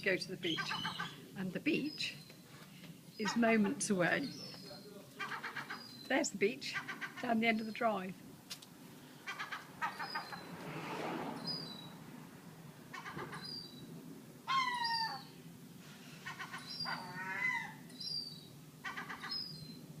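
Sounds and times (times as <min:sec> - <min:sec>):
seagulls calling: 0:00.3 - 0:02.3, 0:03.1 - 0:08.0, 0:09.1 - 0:10.6, 0:12.8 - 0:15.4, 0:16.1 - 0:19.9.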